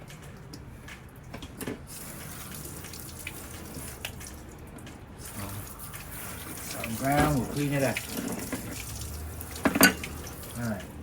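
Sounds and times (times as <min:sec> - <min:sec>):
tap water running into sink: 0:01.9 - 0:04.4, 0:05.2 - 0:11.0.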